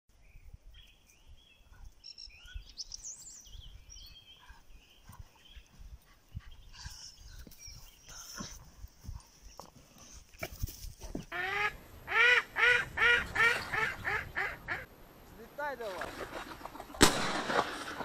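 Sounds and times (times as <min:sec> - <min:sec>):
songbirds chirping and singing: 0:00.1 - 0:10.3.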